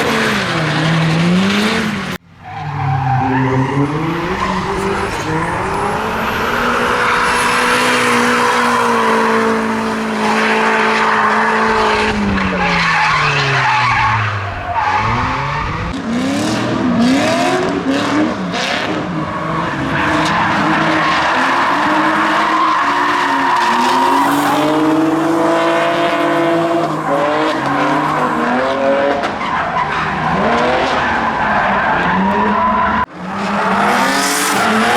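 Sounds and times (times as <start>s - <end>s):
car engine revving: 0.0s - 34.9s
tyres screeching: 2.4s - 15.9s, 19.8s - 28.5s.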